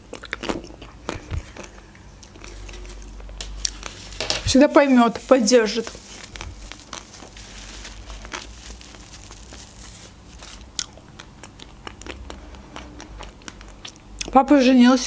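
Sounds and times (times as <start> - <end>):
chewing crunchy ice cream: 0.0 - 4.0, 5.9 - 14.4
paper napkin rustling: 2.5 - 10.7.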